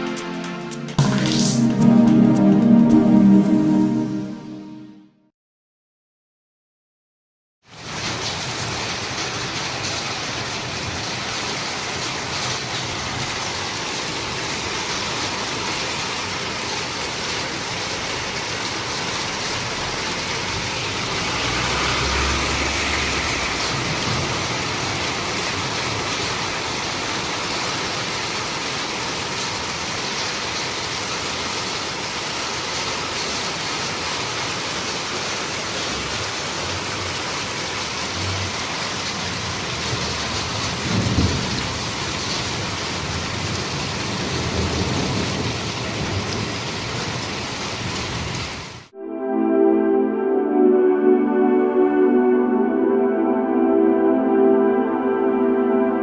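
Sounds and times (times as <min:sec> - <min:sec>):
steady rain hiss: 0:07.7 - 0:48.9.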